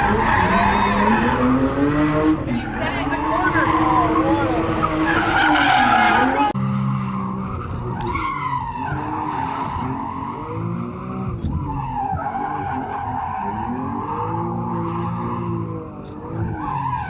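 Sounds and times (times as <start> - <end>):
tyres squealing: 0.0 - 6.6
car engine revving: 0.0 - 17.0.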